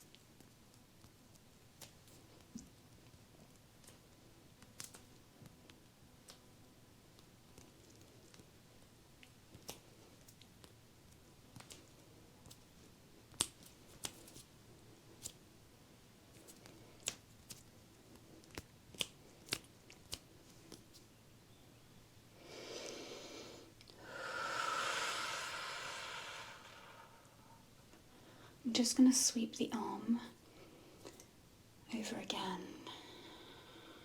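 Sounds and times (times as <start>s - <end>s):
hand clicks and snips: 11.5s - 11.9s, 13.3s - 14.5s, 18.4s - 21.0s.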